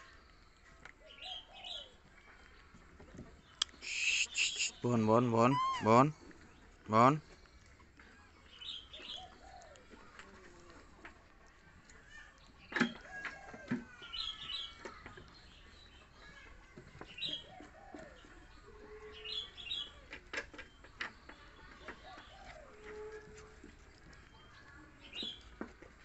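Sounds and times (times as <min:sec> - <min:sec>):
birds chirping: 0:03.4 - 0:09.9, 0:12.2 - 0:25.6.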